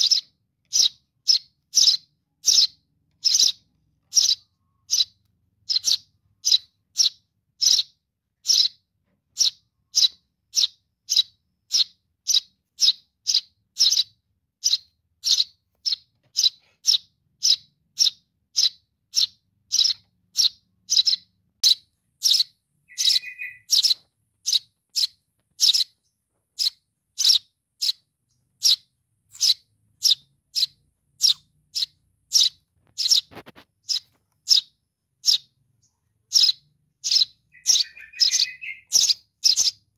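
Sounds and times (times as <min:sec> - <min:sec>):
bird chick chirping: 0:00.0 - 0:39.9
lower bird call: 0:09.4 - 0:28.0, 0:36.3 - 0:39.8.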